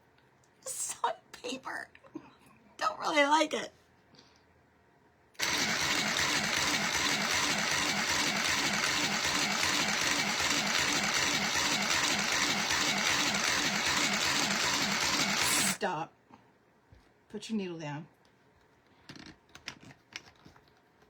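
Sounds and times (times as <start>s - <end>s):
sewing machine whirring: 5.4s - 15.8s.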